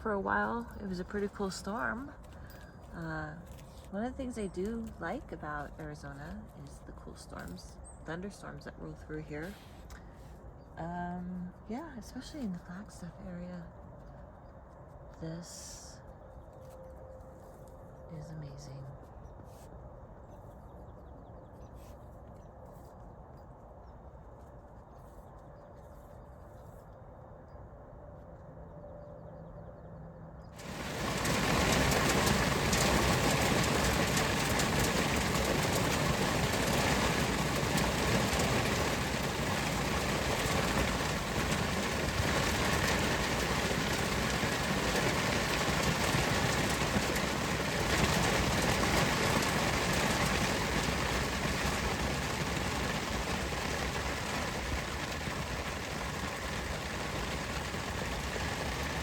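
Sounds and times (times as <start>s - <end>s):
heavy rain: 30.6s - 59.0s.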